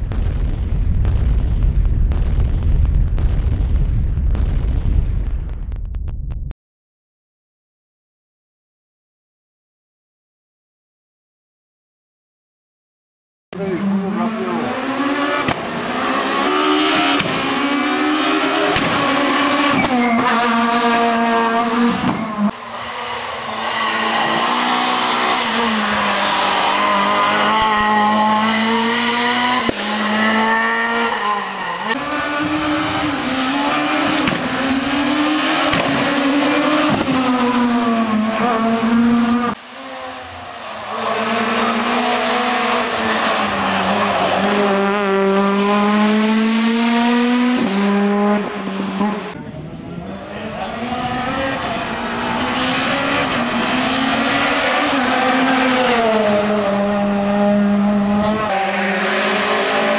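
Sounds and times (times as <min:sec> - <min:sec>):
rally car engines revving: 0:13.5 - 0:59.9.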